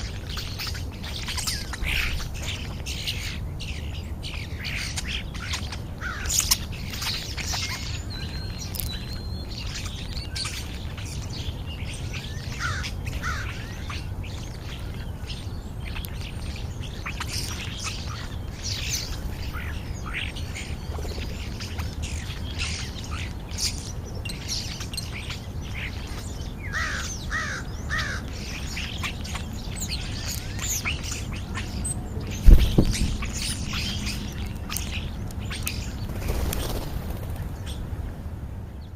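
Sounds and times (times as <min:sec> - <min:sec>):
starlings chirping and squawking: 0:00.0 - 0:38.2
steady low rumble: 0:27.7 - 0:38.9.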